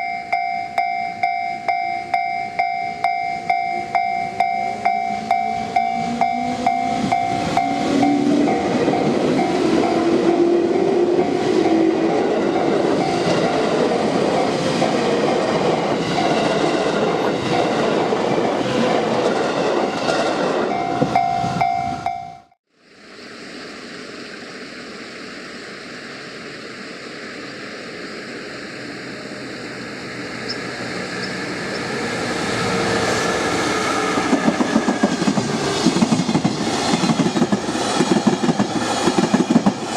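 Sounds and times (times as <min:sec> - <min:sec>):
freight train approaching: 0:00.0 - 0:22.6, 0:27.8 - 0:39.9
electric train running past: 0:00.0 - 0:23.1, 0:24.1 - 0:39.9
train wheel clatter: 0:30.4 - 0:39.9.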